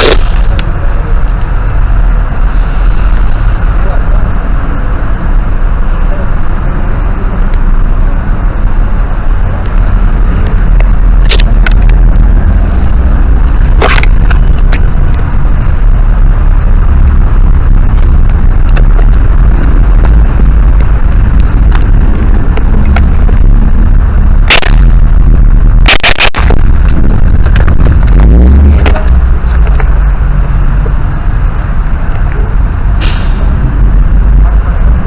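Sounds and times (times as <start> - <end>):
low rumble on microphone: 0.0 - 35.0.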